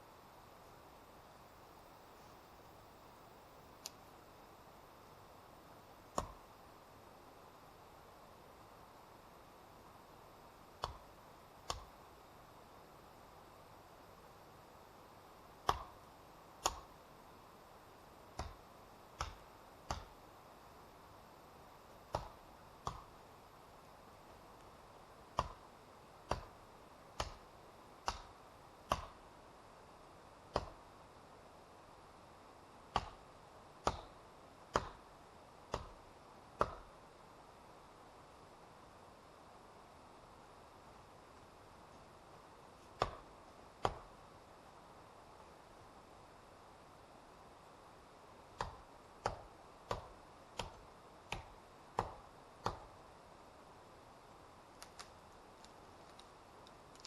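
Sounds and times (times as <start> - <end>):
steady low hiss: 0.0 - 57.0.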